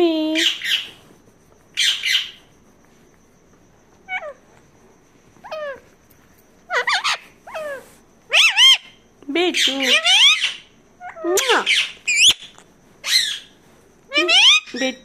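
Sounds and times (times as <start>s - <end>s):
parrot squawking: 6.7s - 9.0s, 9.6s - 13.5s, 14.1s - 14.9s.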